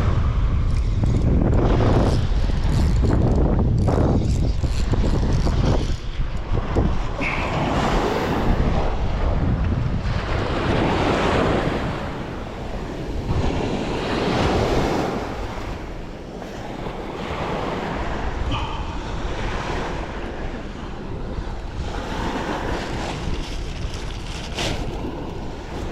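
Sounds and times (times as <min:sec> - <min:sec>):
wind buffeting microphone: 0:00.0 - 0:25.9
sea waves washing: 0:06.0 - 0:25.9.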